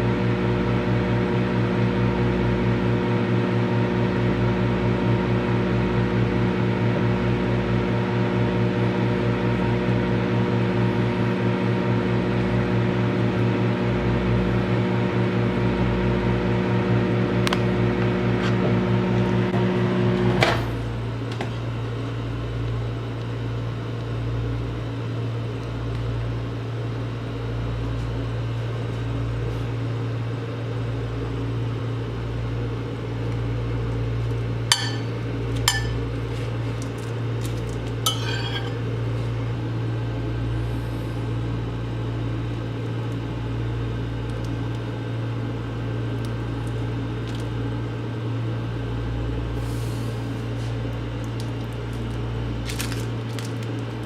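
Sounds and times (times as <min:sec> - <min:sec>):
microwave oven humming: 0:00.0 - 0:54.0
pitched hum with overtones: 0:00.0 - 0:54.0.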